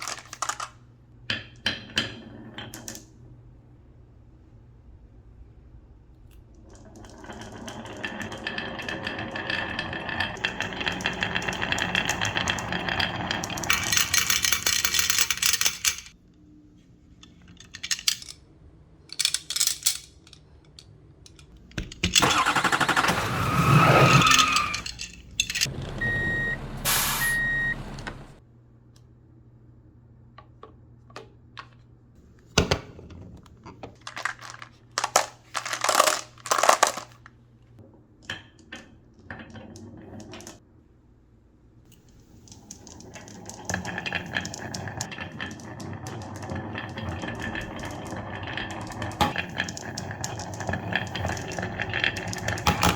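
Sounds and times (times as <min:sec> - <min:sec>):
marbles clattering: 0:00.0 - 0:00.8, 0:06.6 - 0:16.2, 0:33.9 - 0:37.3, 0:42.0 - 0:52.9
marbles rolling on wooden run: 0:06.6 - 0:15.9, 0:34.0 - 0:37.2, 0:42.2 - 0:52.9
falling-pitch sound: 0:25.7 - 0:28.4
short electronic beeps: 0:26.0 - 0:28.3.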